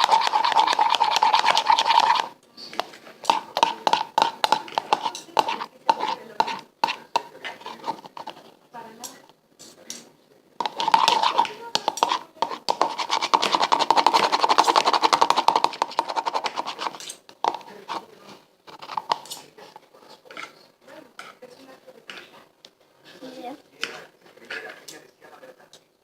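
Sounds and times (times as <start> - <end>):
utensil scraping slime in bowl: 0.0 - 10.0, 10.6 - 20.6.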